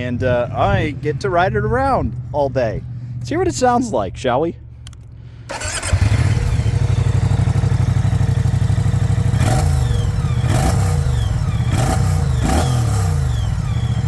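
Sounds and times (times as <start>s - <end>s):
motorcycle engine starting and idling: 4.8s - 14.0s
motorcycle engine revving: 5.5s - 14.0s.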